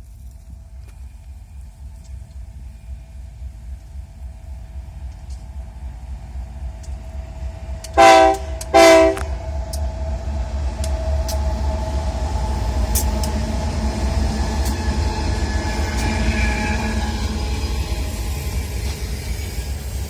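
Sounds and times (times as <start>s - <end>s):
passing train rumble: 0.0s - 20.0s
locomotive horn blasts: 8.0s - 9.4s.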